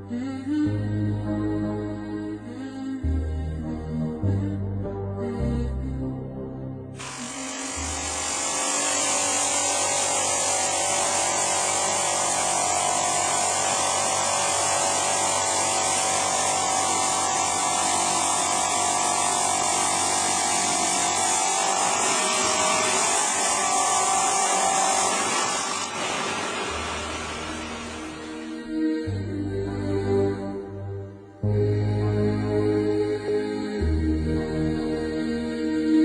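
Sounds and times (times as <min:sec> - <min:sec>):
power saw whining: 0:07.0 - 0:28.8.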